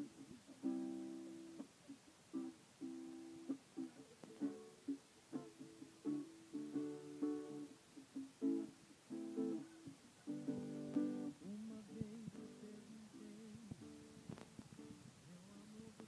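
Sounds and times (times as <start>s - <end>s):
acoustic guitar strumming: 0.0s - 16.0s
person humming or singing softly: 9.3s - 16.0s.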